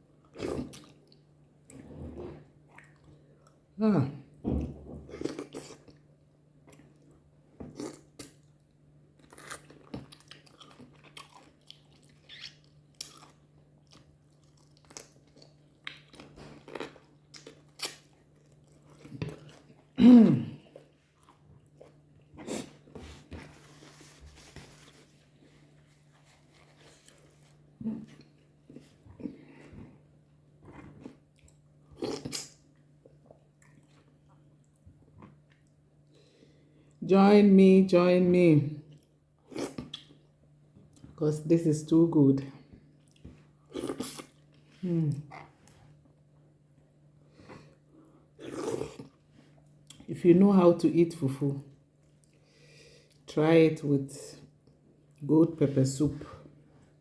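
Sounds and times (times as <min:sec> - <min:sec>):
person chewing: 0:05.2 - 0:08.6, 0:09.2 - 0:20.0, 0:20.6 - 0:23.4, 0:26.0 - 0:35.8, 0:43.0 - 0:46.0, 0:47.4 - 0:50.1.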